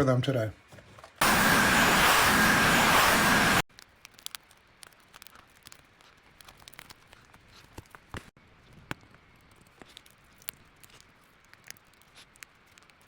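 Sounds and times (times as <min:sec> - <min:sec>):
loud rushing hiss: 0:01.2 - 0:03.6.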